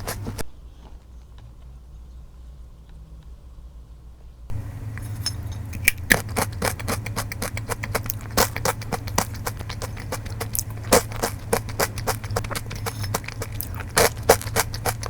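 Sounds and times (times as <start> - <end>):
cashews crackling: 0.0 - 0.4, 4.5 - 15.0
low steady hum: 0.0 - 15.0.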